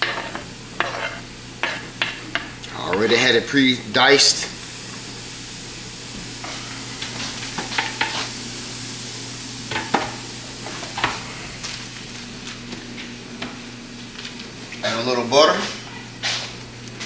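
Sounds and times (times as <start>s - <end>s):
utensil scraping pan: 0.0s - 3.3s
vegetables sizzling in frying pan: 0.0s - 12.3s.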